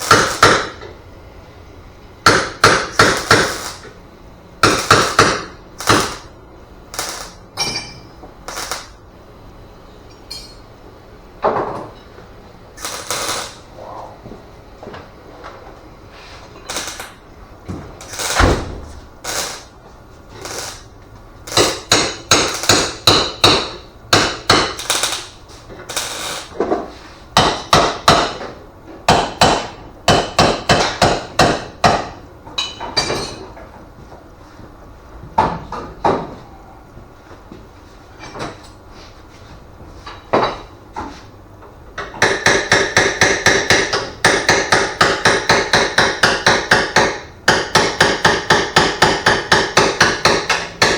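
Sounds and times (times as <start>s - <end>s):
hammer striking metal: 0.0s - 0.8s, 2.2s - 3.8s, 4.6s - 6.3s, 7.0s - 8.9s, 21.5s - 25.3s, 27.4s - 28.5s, 29.1s - 33.3s, 42.2s - 50.9s.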